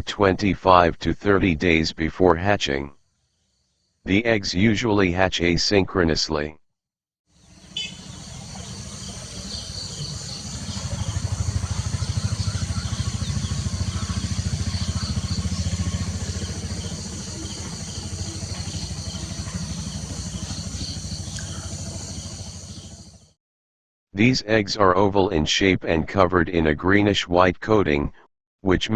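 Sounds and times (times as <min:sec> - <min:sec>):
low rumbling with rapid flutter: 0:07.4 - 0:23.4.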